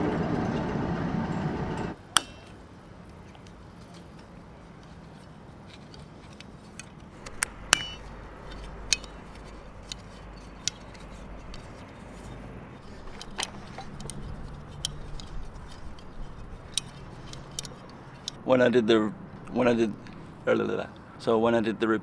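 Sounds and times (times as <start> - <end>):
small hard objects clicking: 5.8 - 18.4.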